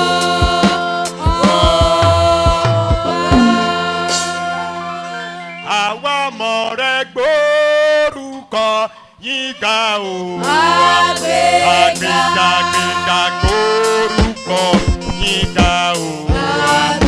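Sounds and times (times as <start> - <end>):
man singing a chant: 0.0 - 4.1, 12.4 - 17.0
held low drone note: 3.2 - 4.6.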